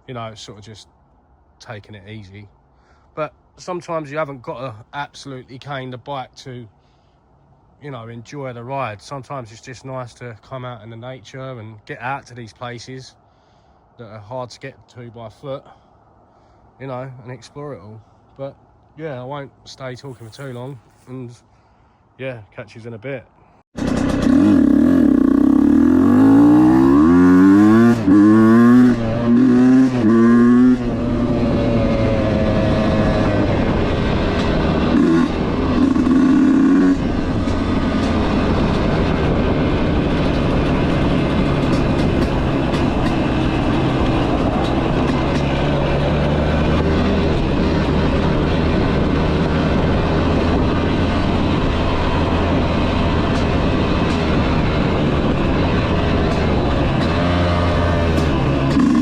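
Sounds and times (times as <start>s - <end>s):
dirt bike engine revving: 23.8s - 59.0s.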